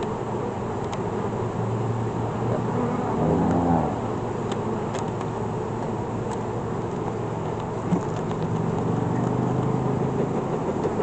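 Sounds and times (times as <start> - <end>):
honeybees buzzing: 0.2 - 7.9.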